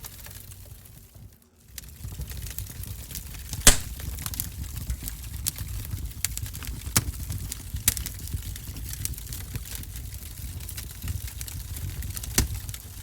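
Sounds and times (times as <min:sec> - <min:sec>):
wood fire crackling: 0:03.7 - 0:04.0.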